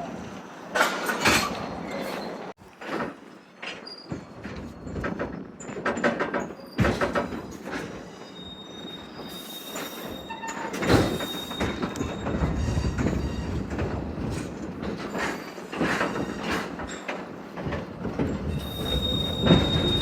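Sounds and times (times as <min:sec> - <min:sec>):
railroad car rolling on track: 0:00.0 - 0:20.0
high wheel squeal: 0:08.0 - 0:13.7, 0:18.5 - 0:20.0.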